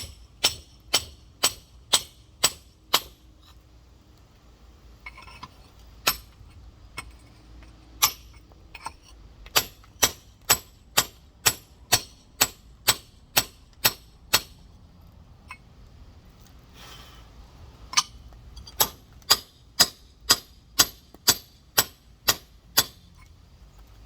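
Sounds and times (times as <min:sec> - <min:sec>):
hammer striking stone: 0:00.0 - 0:03.2, 0:06.0 - 0:06.4, 0:08.0 - 0:08.9, 0:09.5 - 0:14.6, 0:18.0 - 0:23.0.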